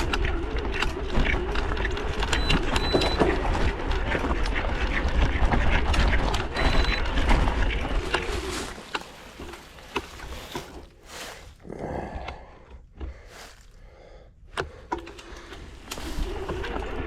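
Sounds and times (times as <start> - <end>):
vehicle engine: 0.0 - 11.6, 14.9 - 17.0.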